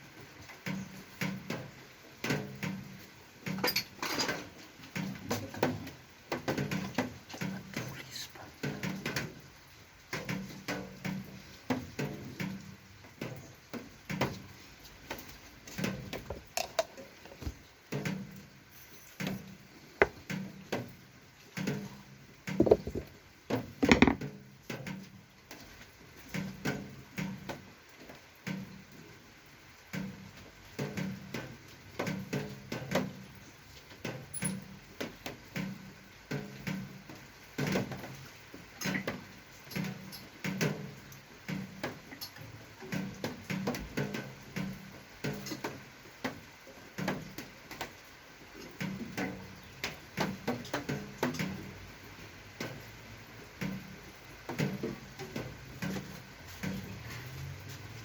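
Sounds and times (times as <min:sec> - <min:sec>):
small parts and tools clicking: 0:34.1 - 0:34.7.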